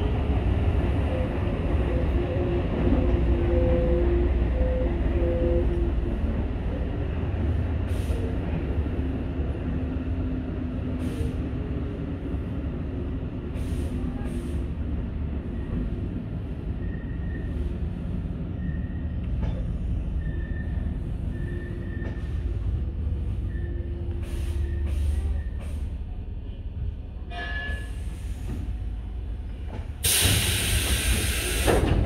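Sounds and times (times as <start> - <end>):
electric train rumbling: 0.0 - 32.0
high-pitched wheel squeals: 20.2 - 22.4.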